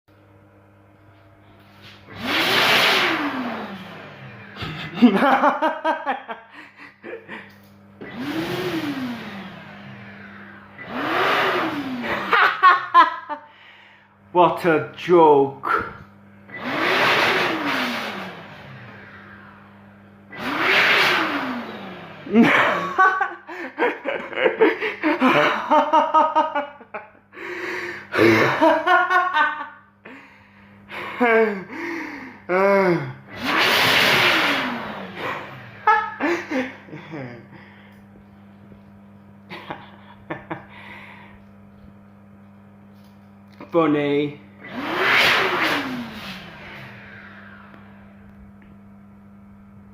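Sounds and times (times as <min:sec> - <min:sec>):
hand dryer blowing air: 0:01.1 - 0:42.0, 0:43.0 - 0:49.9
person laughing and gasping: 0:04.4 - 0:07.7, 0:11.9 - 0:13.7, 0:22.3 - 0:33.2, 0:35.2 - 0:38.0, 0:39.5 - 0:41.4.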